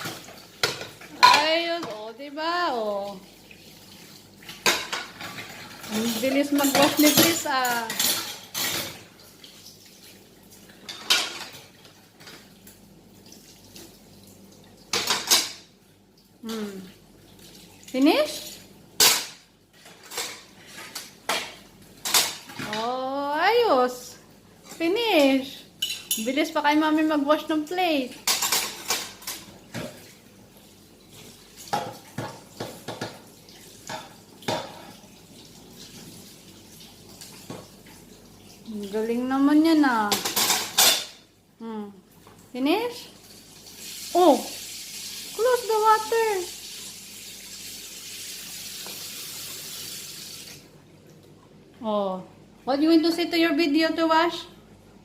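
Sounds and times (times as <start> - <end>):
running water splashing: 0.0 - 19.1, 42.0 - 51.2
crockery clinking: 4.6 - 9.0.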